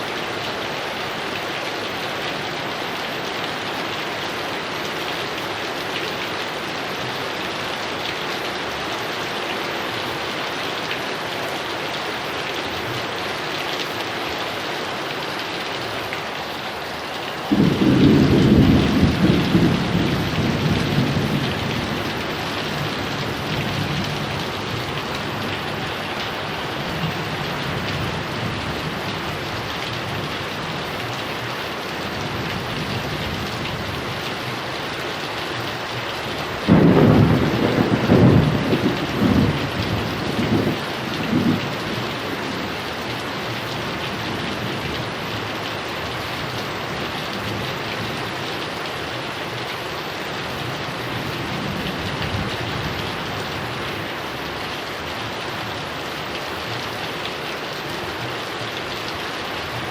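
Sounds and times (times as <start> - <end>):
heavy rain falling: 0.0 - 59.9
thunderclap with rolling rumbles: 17.5 - 25.7, 36.6 - 42.7.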